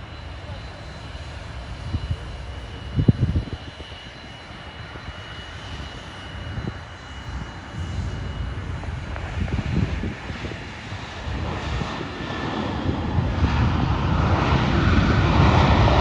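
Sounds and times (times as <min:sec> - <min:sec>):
distant aircraft engines rumbling: 0:00.0 - 0:16.0
high engine whine: 0:00.0 - 0:16.0.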